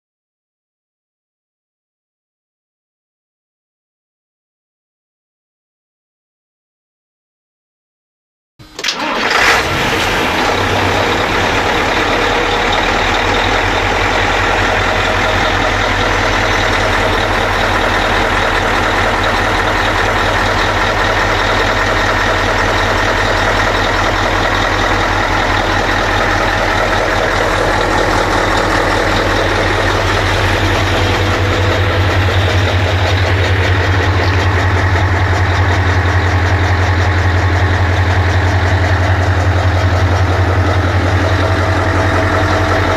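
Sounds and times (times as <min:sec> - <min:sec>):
diesel truck engine starting and idling: 0:08.6 - 0:42.9.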